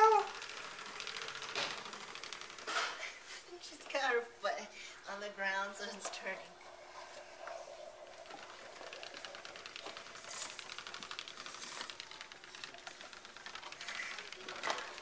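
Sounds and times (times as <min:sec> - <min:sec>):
toy motorcycle wheels clicking: 0:00.0 - 0:03.9, 0:08.0 - 0:15.0.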